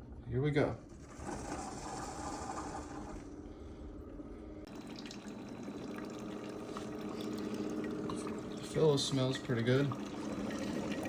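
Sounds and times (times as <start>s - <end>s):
faint steady hum: 2.3s - 11.0s
coffee maker water hissing: 4.6s - 11.0s.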